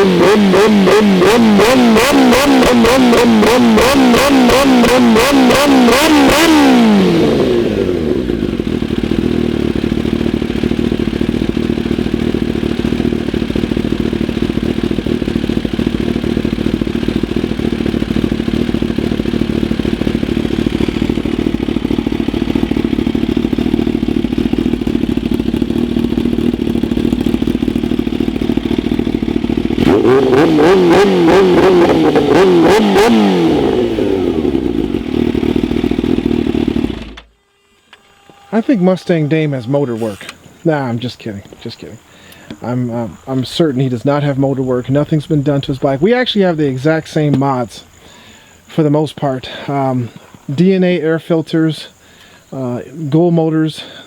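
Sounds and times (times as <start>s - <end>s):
motorcycle engine revving: 0.0s - 48.3s
motorcycle engine idling: 0.0s - 50.5s, 51.9s - 52.9s.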